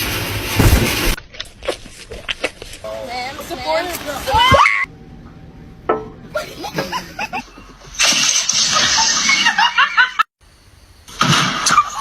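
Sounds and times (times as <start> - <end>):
person laughing: 6.3 - 8.0.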